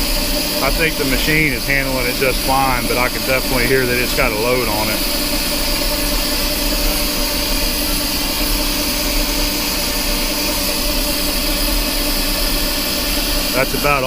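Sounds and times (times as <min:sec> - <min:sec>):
metal lathe cutting steel: 0:00.0 - 0:14.0.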